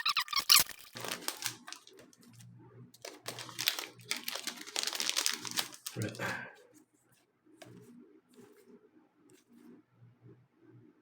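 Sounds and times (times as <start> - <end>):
wrapper crinkling: 0.0 - 6.3.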